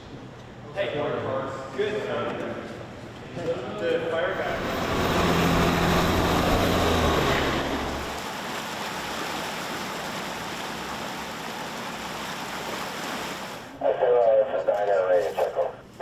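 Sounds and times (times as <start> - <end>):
vehicle engine humming: 4.0 - 9.1.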